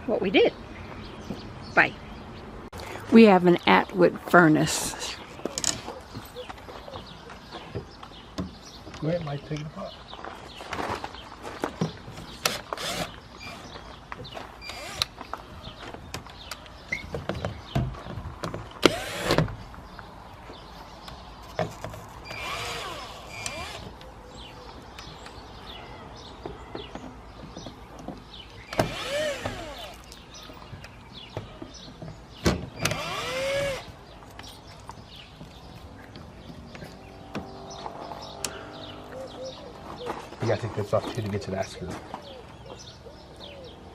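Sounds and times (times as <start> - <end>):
cordless drill whining: 12.4 - 13.6, 14.6 - 15.1, 18.8 - 19.4, 22.3 - 23.9, 28.7 - 30.0, 32.8 - 33.9.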